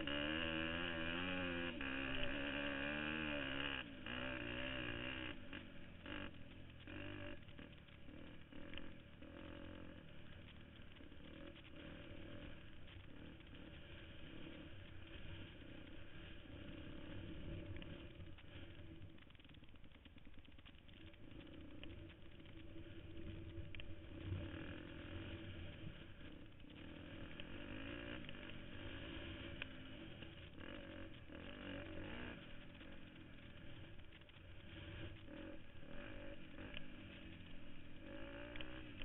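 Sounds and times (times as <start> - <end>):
dirt bike engine running: 0.0 - 39.0.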